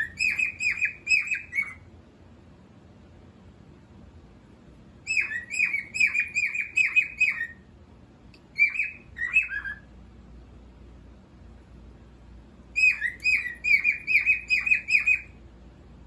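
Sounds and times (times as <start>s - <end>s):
cockatiel chirping: 0.0s - 1.9s, 5.0s - 7.6s, 8.5s - 9.9s, 12.8s - 15.4s.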